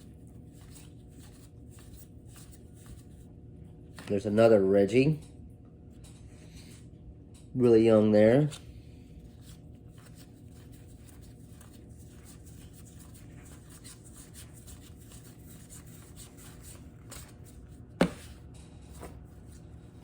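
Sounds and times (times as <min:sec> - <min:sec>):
cards rustling: 0:00.0 - 0:03.3, 0:08.4 - 0:20.0.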